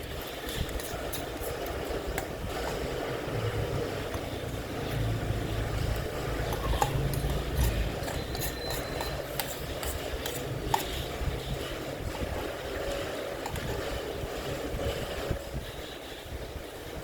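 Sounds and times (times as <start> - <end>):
utensils clicking on a bowl: 0.0 - 2.4, 4.0 - 14.1.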